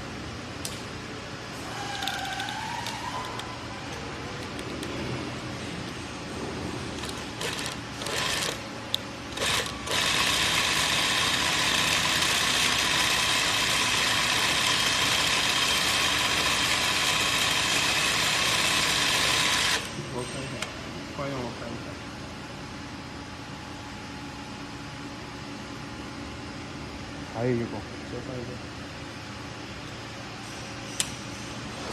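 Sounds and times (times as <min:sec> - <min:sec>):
sewing machine stitching: 0:07.0 - 0:08.6, 0:09.4 - 0:19.9.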